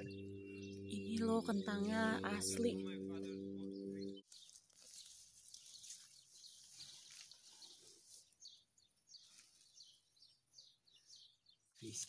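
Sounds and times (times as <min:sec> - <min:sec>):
small bird chirps: 0:00.0 - 0:12.0
hands digging in soil: 0:04.3 - 0:08.4.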